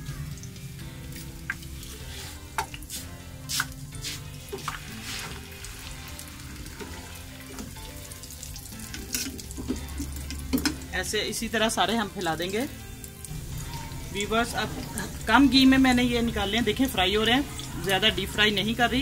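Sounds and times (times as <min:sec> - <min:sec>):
fritters sizzling in a pan: 0:00.0 - 0:10.9.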